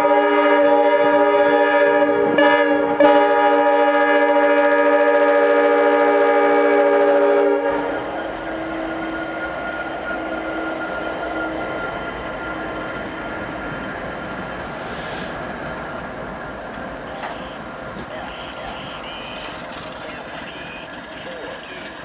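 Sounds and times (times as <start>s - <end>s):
locomotive air horn: 0.0s - 11.5s
locomotive engine and wheels rumbling: 0.0s - 22.0s.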